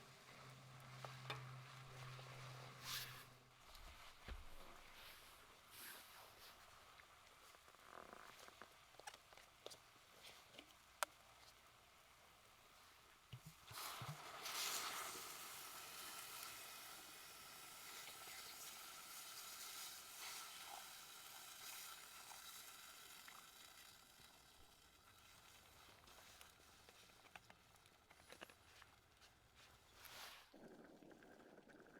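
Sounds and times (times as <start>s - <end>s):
food sizzling over fire: 13.7s - 24.2s.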